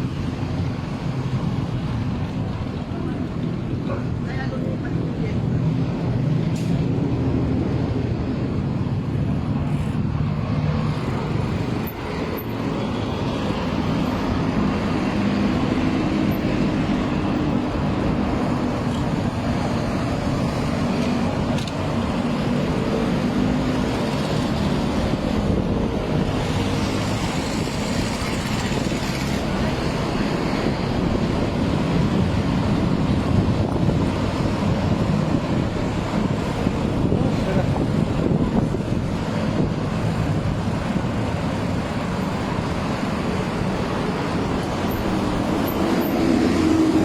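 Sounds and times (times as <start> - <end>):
road traffic engine hum: 0.0 - 47.0.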